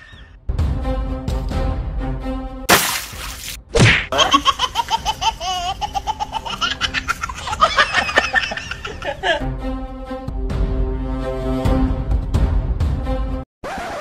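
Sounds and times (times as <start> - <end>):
laughter: 4.1 - 9.4.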